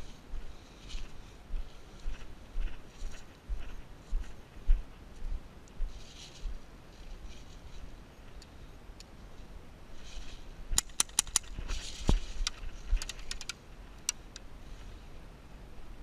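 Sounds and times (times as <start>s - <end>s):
soft rustling: 0.0s - 10.8s, 11.4s - 14.0s.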